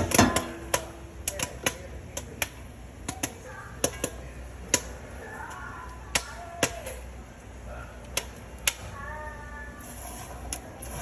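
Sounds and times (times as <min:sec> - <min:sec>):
popcorn popping: 0:00.0 - 0:07.1, 0:08.0 - 0:09.0.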